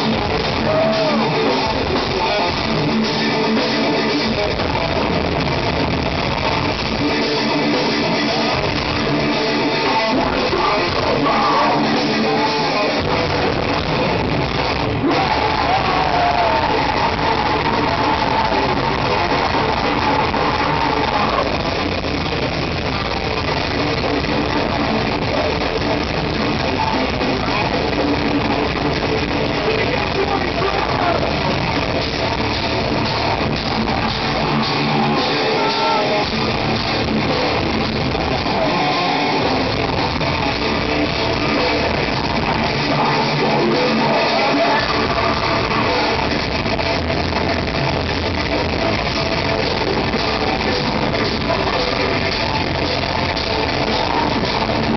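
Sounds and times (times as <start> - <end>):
heavy metal band playing live: 0.0 - 54.9.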